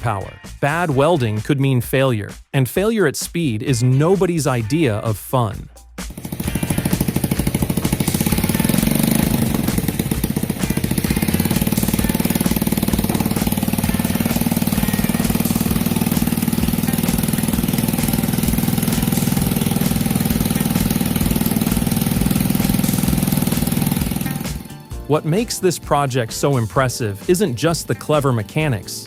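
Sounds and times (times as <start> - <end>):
small motorcycle engine running: 6.0 - 29.0.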